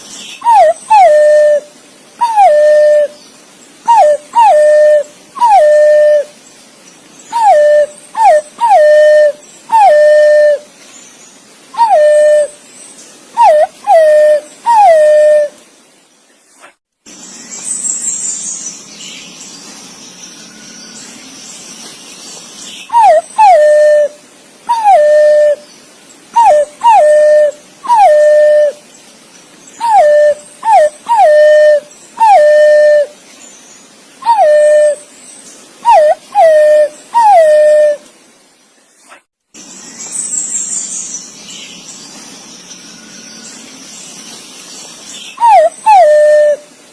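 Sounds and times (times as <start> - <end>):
faint hiss: 0.0 - 46.9
green pigeon whistled calls: 0.4 - 3.2, 3.8 - 6.3, 7.3 - 10.7, 11.8 - 12.6, 13.3 - 15.6, 22.8 - 25.6, 26.3 - 28.8, 29.8 - 33.2, 34.2 - 35.1, 35.8 - 38.0, 45.2 - 46.7.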